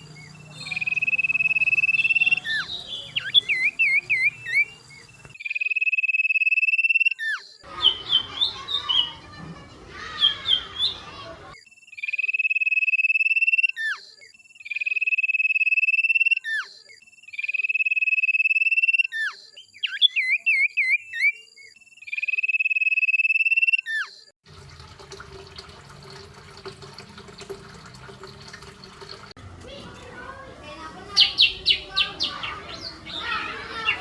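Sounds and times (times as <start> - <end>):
songbird trilling song: 0.0 - 9.4, 10.0 - 11.4, 30.8 - 34.0.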